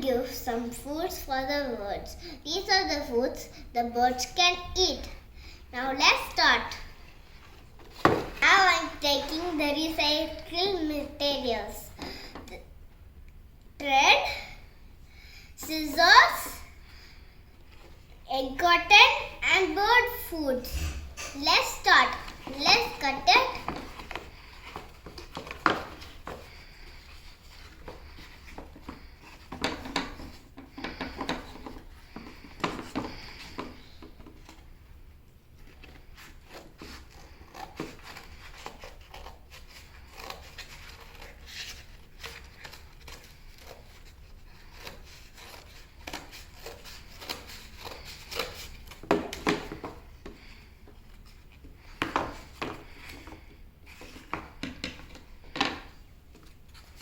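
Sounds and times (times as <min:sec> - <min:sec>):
scissors cutting cardboard: 0:36.2 - 0:50.0.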